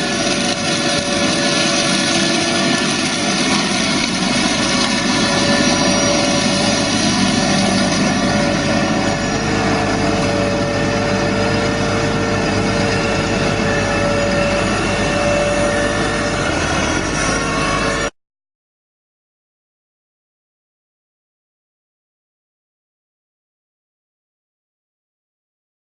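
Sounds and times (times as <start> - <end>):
faint whine: 0.0 - 18.1
tractor engine drone: 0.0 - 18.2.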